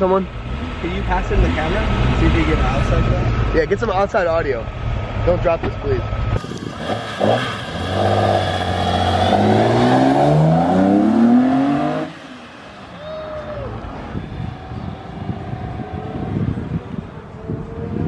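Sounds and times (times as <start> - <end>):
faint street noise: 0.0 - 18.0
car engine accelerating hard: 6.3 - 18.0.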